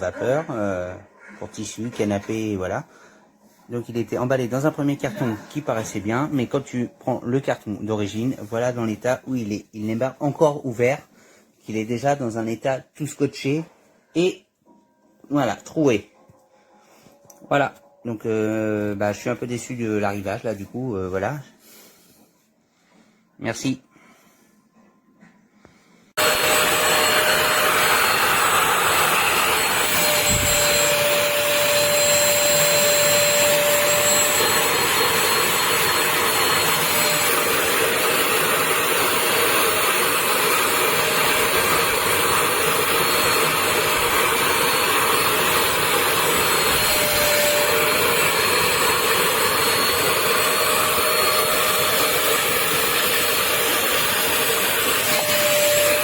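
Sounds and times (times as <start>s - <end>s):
wet vacuum motor humming: 26.2s - 56.0s.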